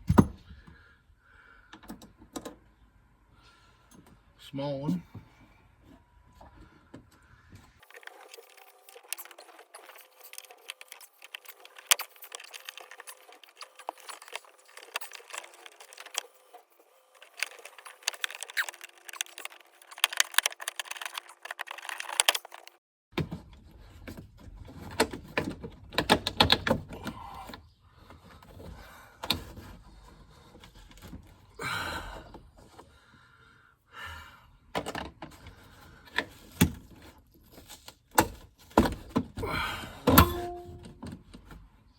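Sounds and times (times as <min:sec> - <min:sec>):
tools and metal parts clinking: 0:07.8 - 0:22.8, 0:40.1 - 0:41.2
plastic trim clicks and rattles: 0:17.2 - 0:22.8.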